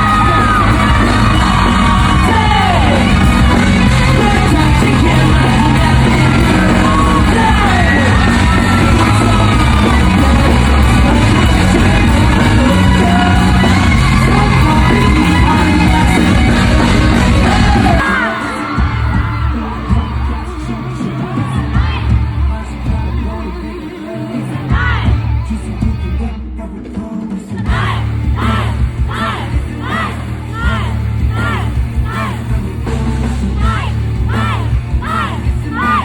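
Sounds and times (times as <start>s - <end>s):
crowd yelling and whooping: 0.0s - 26.4s, 27.5s - 36.0s
live pop music with singing: 0.0s - 36.0s.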